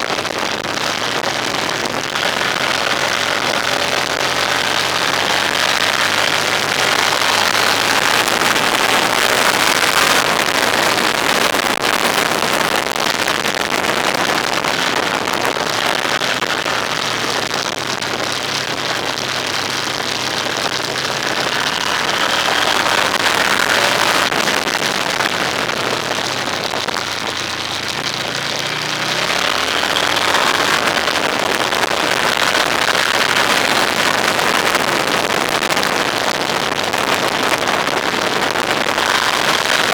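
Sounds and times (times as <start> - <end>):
vehicle engine hum: 0.0 - 11.0, 13.1 - 39.9
wind and tyre noise: 0.0 - 39.9.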